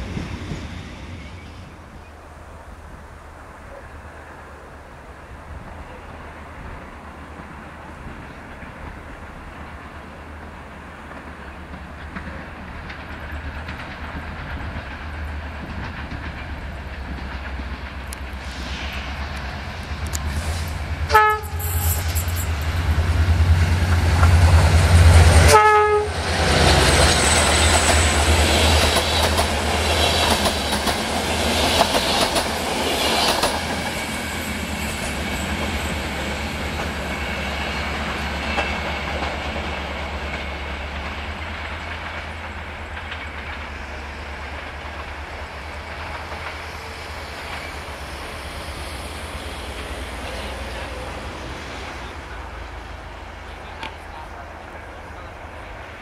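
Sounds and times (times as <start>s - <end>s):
train rumble: 0.0s - 56.0s
train horn blasts: 21.1s - 22.3s, 25.1s - 26.8s.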